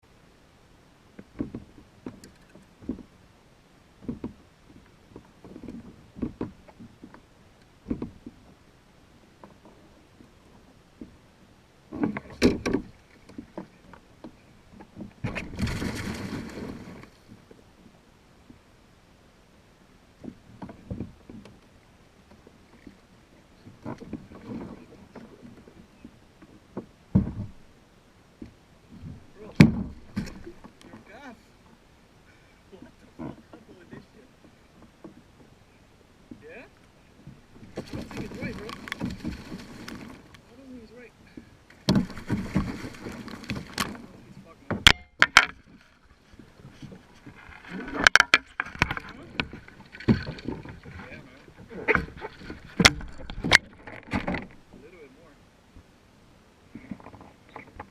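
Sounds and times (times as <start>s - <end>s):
faint steady hiss: 0.0s - 57.9s
knocks and bumps on kayak: 5.1s - 7.2s, 7.8s - 8.4s, 11.9s - 17.1s, 26.8s - 27.7s, 28.4s - 31.1s, 37.2s - 40.3s, 41.4s - 45.9s, 46.5s - 54.6s
knocks against kayak hull: 41.8s - 44.1s.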